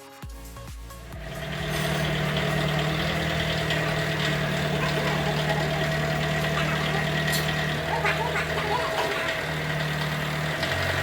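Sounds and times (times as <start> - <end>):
motor-driven machine humming: 0.4 - 11.0.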